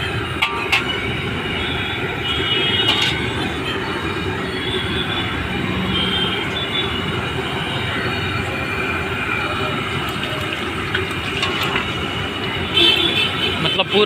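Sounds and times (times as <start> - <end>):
deep-frying in hot oil sizzle: 8.9 - 12.5.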